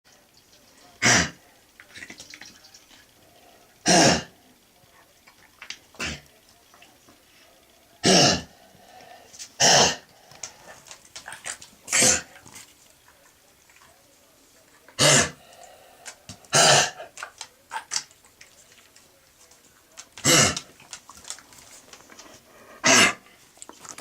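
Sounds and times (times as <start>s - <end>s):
dog coughing harshly: 1.0s - 1.4s, 3.8s - 4.3s, 6.0s - 6.2s, 8.0s - 8.5s, 9.6s - 10.1s, 11.9s - 12.3s, 15.0s - 15.4s, 16.5s - 17.1s, 20.2s - 20.7s, 22.8s - 23.2s.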